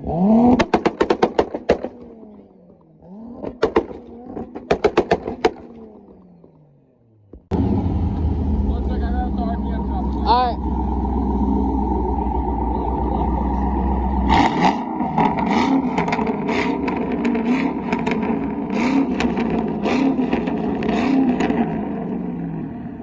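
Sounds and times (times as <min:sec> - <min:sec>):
car engine revving: 0:00.0 - 0:23.0
crackling exhaust pops: 0:00.4 - 0:07.6, 0:15.2 - 0:21.8.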